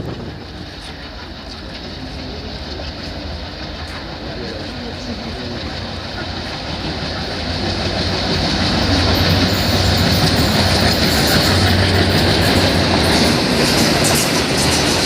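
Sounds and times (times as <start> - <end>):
rail joints clattering: 0.0 - 15.0
train wheels rumbling on rails: 0.0 - 15.0.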